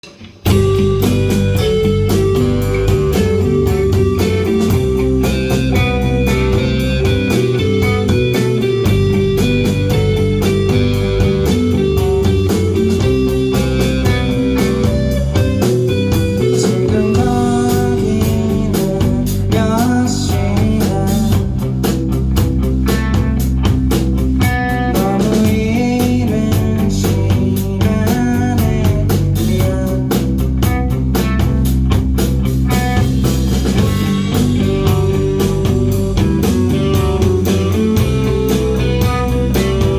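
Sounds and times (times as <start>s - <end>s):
bass guitar: 0.0s - 39.9s
electric guitar: 0.0s - 39.9s
steady drum beat: 0.0s - 39.9s.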